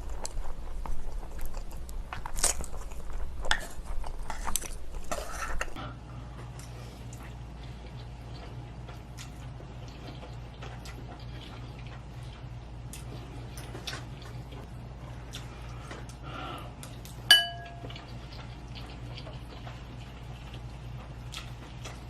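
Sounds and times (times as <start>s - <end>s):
steady low hum: 0.0s - 22.0s
tableware clink: 17.3s - 17.9s.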